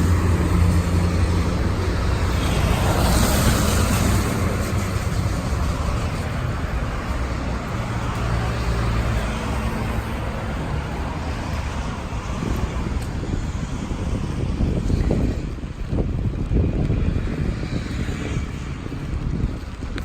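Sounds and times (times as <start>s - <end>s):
tyres hissing on wet road: 0.0s - 15.6s
low traffic rumble: 0.0s - 20.0s.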